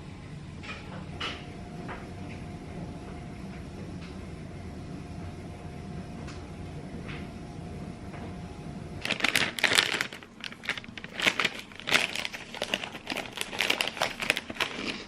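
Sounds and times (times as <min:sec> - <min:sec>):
plastic packaging crinkling and tearing: 0:09.0 - 0:15.0.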